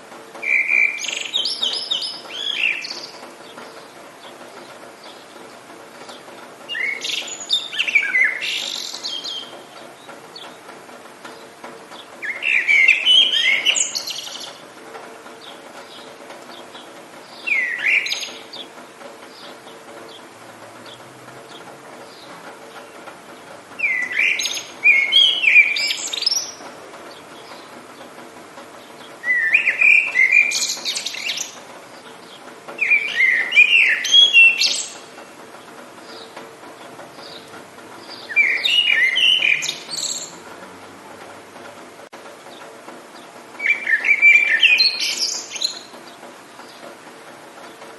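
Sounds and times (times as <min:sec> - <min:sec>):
steady background hiss: 0:00.0 - 0:47.9
songbird whistling: 0:00.4 - 0:03.2, 0:06.7 - 0:09.6, 0:12.2 - 0:14.6, 0:17.4 - 0:18.6, 0:23.8 - 0:26.6, 0:29.2 - 0:31.6, 0:32.8 - 0:35.0, 0:38.1 - 0:40.3, 0:43.6 - 0:45.9.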